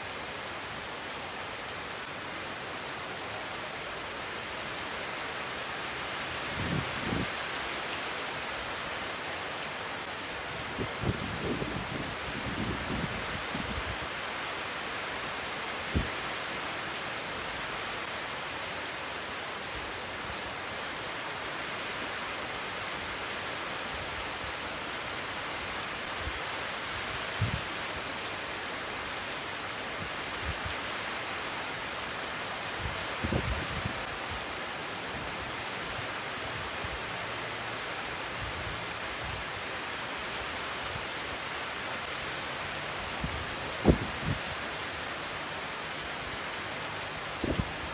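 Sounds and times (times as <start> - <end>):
steady rain: 0.0 - 47.9
wind gusts buffeting microphone: 10.7 - 13.8, 43.2 - 44.5, 47.4 - 47.7.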